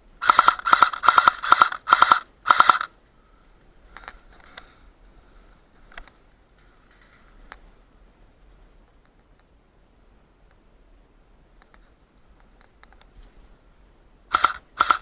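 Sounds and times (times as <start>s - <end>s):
airsoft rifle rapid bursts: 0.2s - 2.9s, 14.3s - 15.0s
faint clicks: 3.9s - 4.8s, 5.9s - 7.7s, 11.6s - 13.3s.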